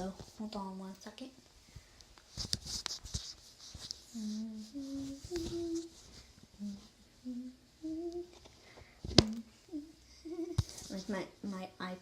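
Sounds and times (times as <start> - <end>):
soft rustling hiss: 0.0 - 12.0
girl humming a tune: 4.2 - 6.0, 6.6 - 8.4, 9.1 - 11.1.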